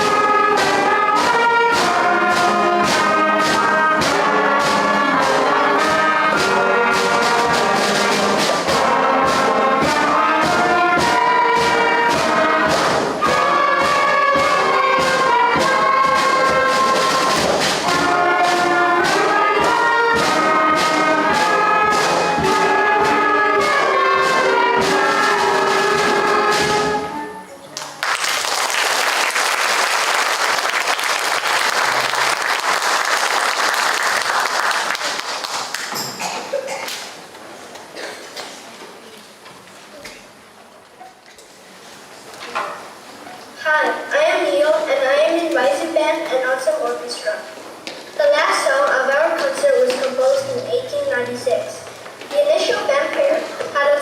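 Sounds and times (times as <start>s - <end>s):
concert band playing: 0.0s - 27.8s, 42.9s - 54.0s
audience applause: 27.8s - 36.0s.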